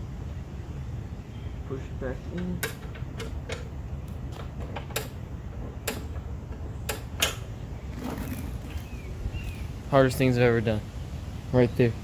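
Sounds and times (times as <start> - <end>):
clicks and knocks of mower part: 2.3 - 8.9.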